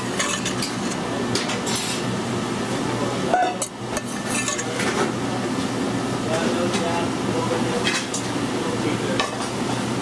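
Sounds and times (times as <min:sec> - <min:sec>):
metal utensils clinking on pan: 0:00.0 - 0:02.0, 0:03.6 - 0:05.0.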